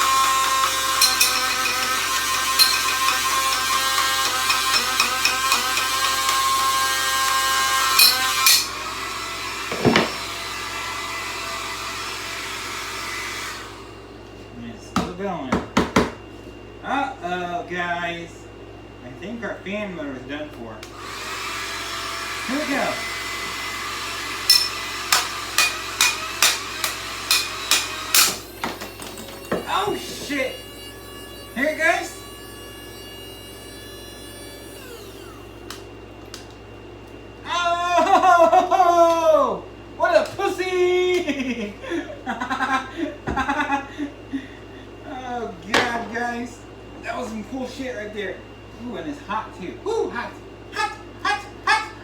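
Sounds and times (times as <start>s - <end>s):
rotary tool whining cutting plastic: 0.0s - 13.8s, 20.9s - 36.5s
hair dryer blowing: 0.0s - 14.1s, 20.9s - 28.6s, 29.2s - 35.9s
metallic ringing strikes: 1.0s - 6.1s, 24.5s - 24.8s
steady hum: 24.3s - 52.0s.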